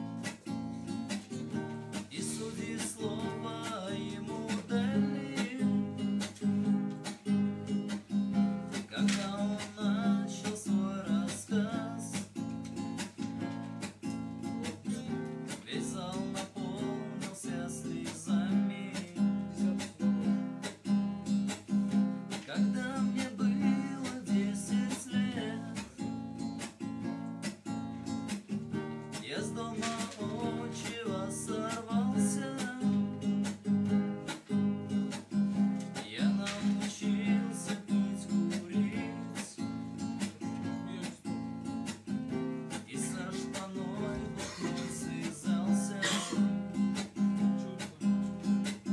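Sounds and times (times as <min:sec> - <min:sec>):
acoustic guitar strumming: 0:00.0 - 0:48.9
man singing: 0:01.5 - 0:06.9, 0:08.6 - 0:13.1, 0:14.4 - 0:20.8, 0:22.3 - 0:26.2, 0:29.0 - 0:33.8, 0:35.1 - 0:48.9.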